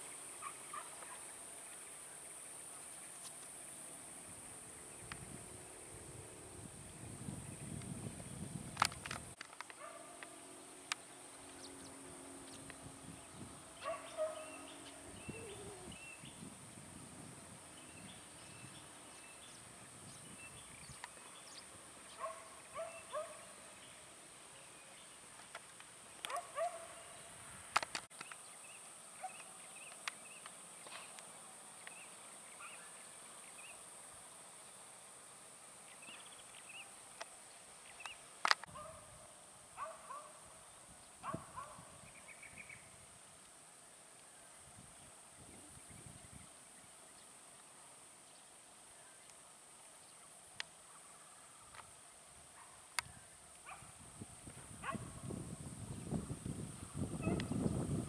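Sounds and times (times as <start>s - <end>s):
steady high hiss: 0.0s - 58.0s
low wind rumble: 4.0s - 9.4s, 10.5s - 23.4s, 53.1s - 58.0s
birds calling: 9.6s - 16.5s.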